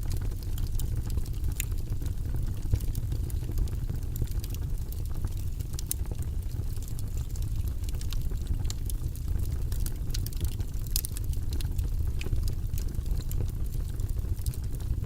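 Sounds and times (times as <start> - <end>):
fire pops and snaps: 0.0 - 15.0
low fire rumble: 0.0 - 15.0.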